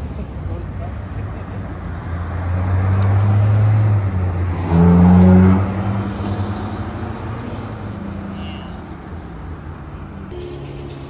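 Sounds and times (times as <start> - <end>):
car engine revving: 1.9 - 8.2.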